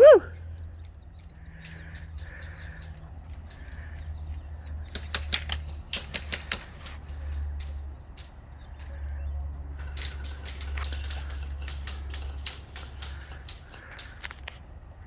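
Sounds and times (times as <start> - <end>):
sharp irregular clicks and taps: 0.6 - 8.9.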